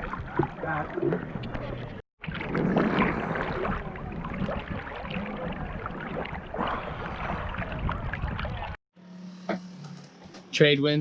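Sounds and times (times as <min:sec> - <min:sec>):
water splashing around boat: 0:00.0 - 0:08.8.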